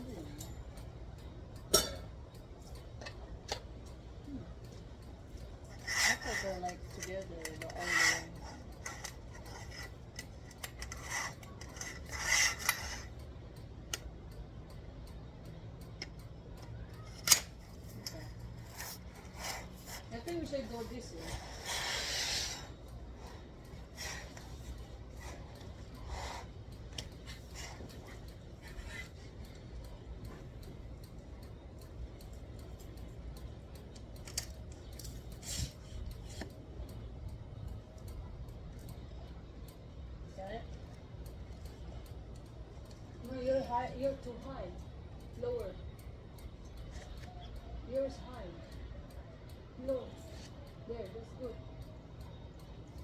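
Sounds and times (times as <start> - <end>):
light clinks and clicks: 0.0 - 53.0
scraping rub: 5.7 - 13.1, 17.2 - 29.2.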